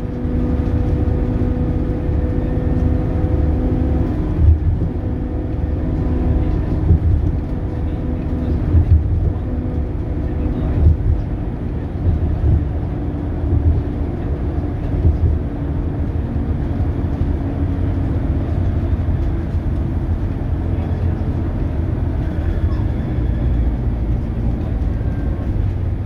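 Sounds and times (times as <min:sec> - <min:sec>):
bus diesel engine rumbling: 0:00.0 - 0:26.0
faint engine hum: 0:00.0 - 0:26.0.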